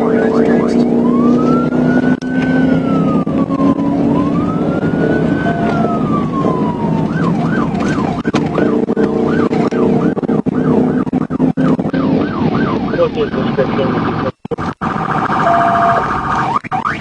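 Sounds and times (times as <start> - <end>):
police siren wailing and yelping: 0.0 - 17.0
vehicle noise: 0.0 - 17.0.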